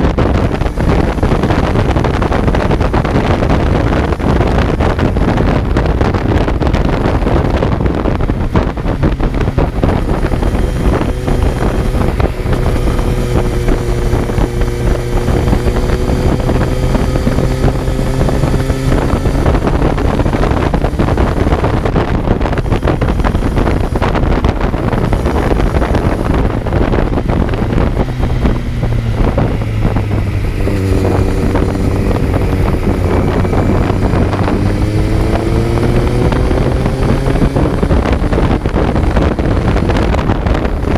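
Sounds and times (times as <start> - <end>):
motorcycle engine running: 0.0 - 40.9
wind rush on microphone: 0.0 - 40.9.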